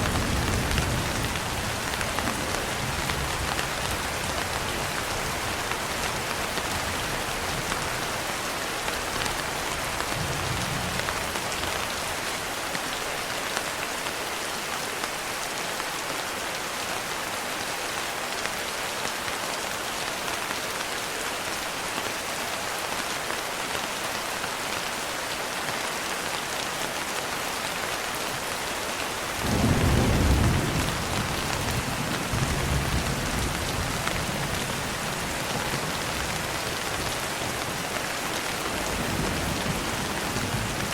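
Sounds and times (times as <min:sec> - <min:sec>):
heavy rain: 0:00.0 - 0:40.9
low rumble of thunder: 0:29.4 - 0:34.9.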